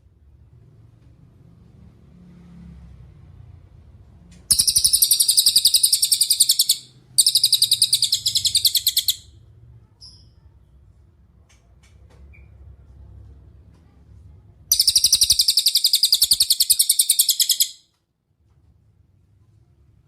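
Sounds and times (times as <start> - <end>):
bird trilling: 4.5 - 9.3, 14.7 - 17.8.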